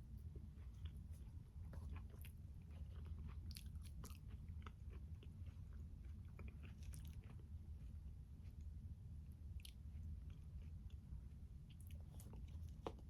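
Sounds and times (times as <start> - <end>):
faint low hum: 0.0 - 13.0
person chewing food: 0.0 - 13.0.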